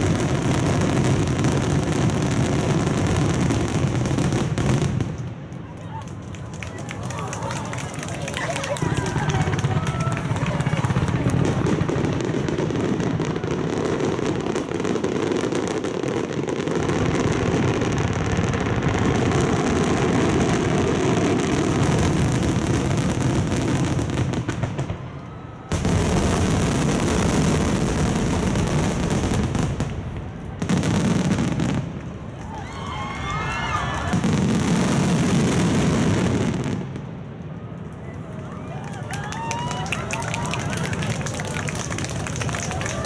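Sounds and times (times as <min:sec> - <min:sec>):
fireworks booming and crackling: 0:00.0 - 0:43.0.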